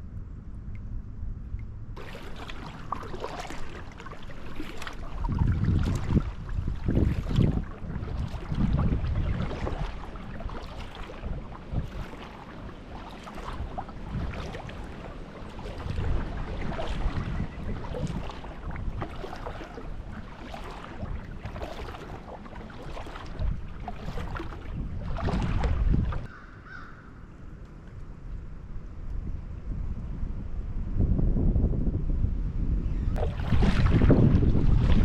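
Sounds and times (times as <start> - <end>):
wind buffeting microphone: 0.0 - 35.0
kayak paddle splashes: 2.0 - 26.8, 33.2 - 35.0.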